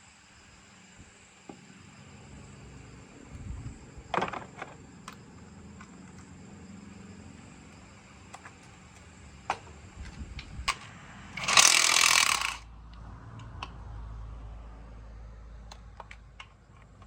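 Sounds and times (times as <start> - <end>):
tools clicking and knocking: 10.7 - 12.6, 15.7 - 17.0.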